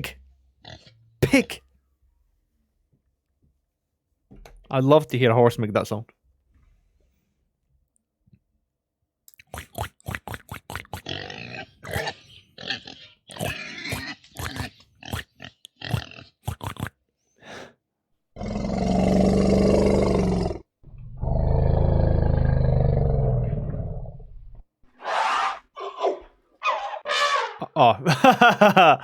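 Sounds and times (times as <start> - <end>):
animal grunts: 9.5 - 17.0, 18.4 - 27.8
long loud low animal calls: 18.4 - 27.8.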